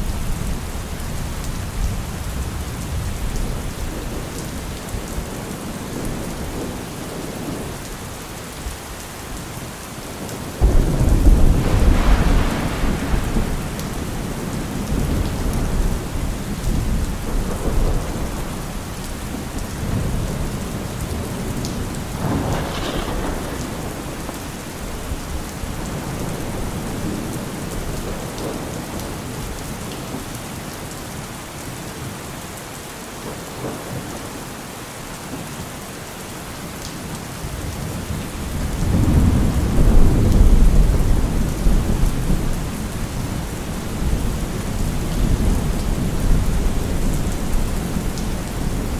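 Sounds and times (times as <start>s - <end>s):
heavy rain: 0.0s - 48.9s
thunder clap rumbling: 10.6s - 29.0s, 38.4s - 48.9s.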